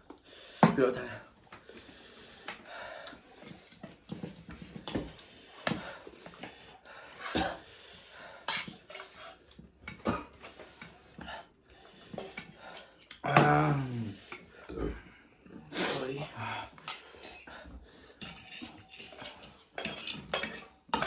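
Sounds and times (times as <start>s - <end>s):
utensils knocking against dishes: 18.2s - 21.0s.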